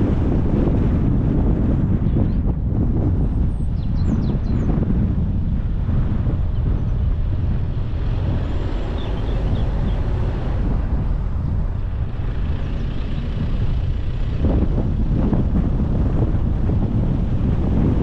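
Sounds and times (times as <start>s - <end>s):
wind buffeting microphone: 0.0s - 18.0s
car driving road noise: 4.4s - 18.0s.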